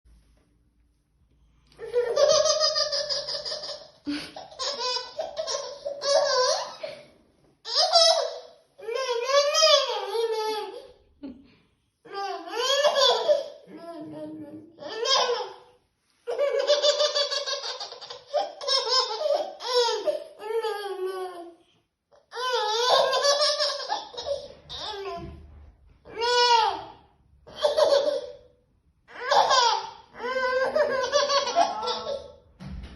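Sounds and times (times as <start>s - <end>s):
child laughing: 1.8s - 7.1s, 16.3s - 21.4s, 29.1s - 32.4s
young child laughing: 1.8s - 7.1s.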